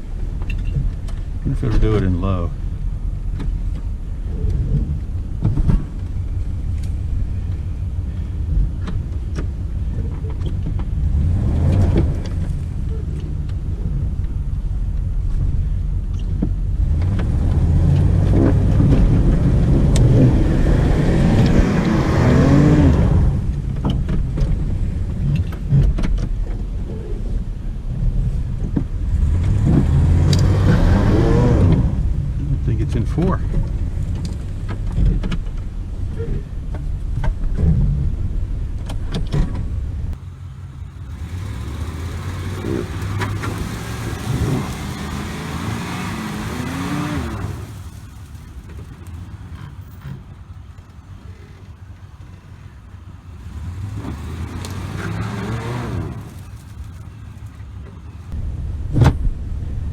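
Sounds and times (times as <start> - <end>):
pickup truck engine revving: 1.2 - 23.7, 29.1 - 33.0, 40.2 - 58.4.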